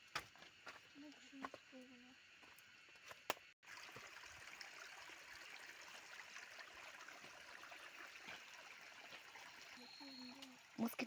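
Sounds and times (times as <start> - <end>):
stream water trickling: 3.6 - 11.0.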